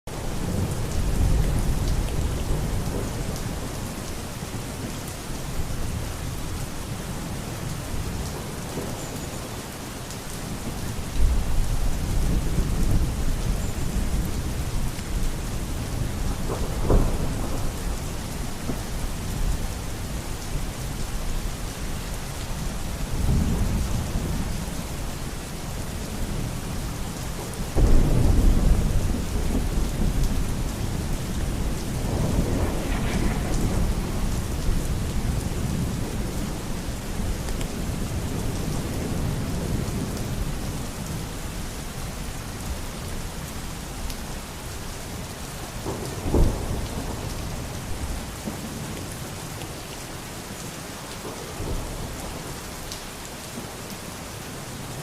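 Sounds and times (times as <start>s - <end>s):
heavy rain: 0.1s - 55.0s
thunder rumbling: 11.3s - 20.2s, 27.6s - 41.2s, 45.8s - 48.8s.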